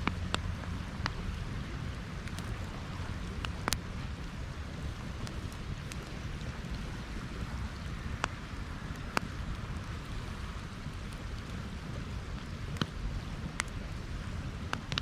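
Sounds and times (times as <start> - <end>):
campfire crackling: 0.0 - 15.0
sharp fire pops: 2.2 - 4.4.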